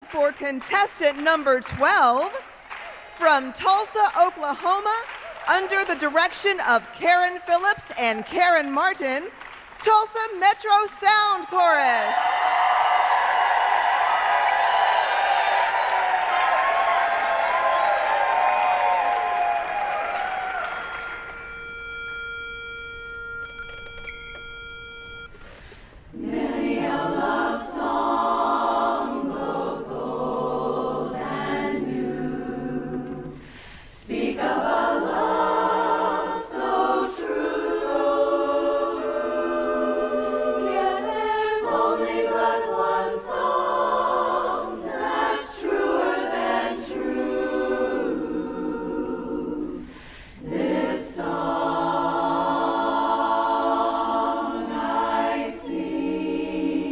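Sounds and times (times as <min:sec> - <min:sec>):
pitch pipe note: 0:20.1 - 0:25.7
women's choir singing a cappella: 0:26.1 - 0:56.9.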